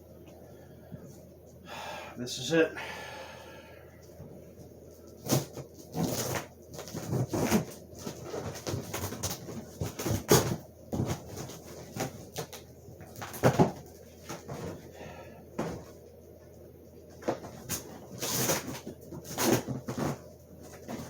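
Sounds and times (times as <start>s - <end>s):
cardboard and paper rustling: 4.9s - 14.9s, 17.1s - 21.0s.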